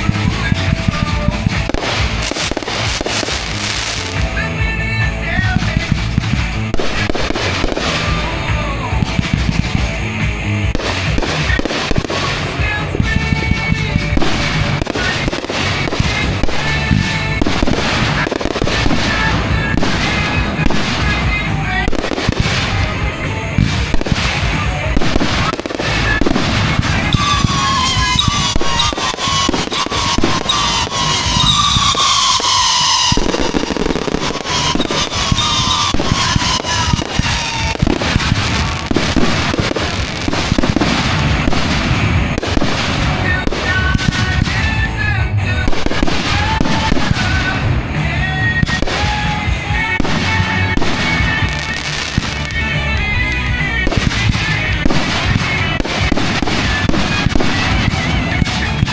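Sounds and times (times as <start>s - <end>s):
fireworks booming bursts: 0.0s - 58.9s
falling whistling tones: 27.1s - 37.8s.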